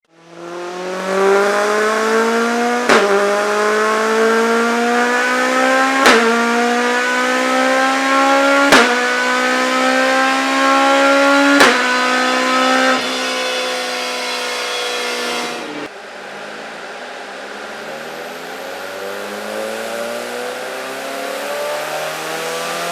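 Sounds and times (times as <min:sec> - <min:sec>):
car engine revving through gears: 0:00.0 - 0:15.9, 0:18.0 - 0:22.9.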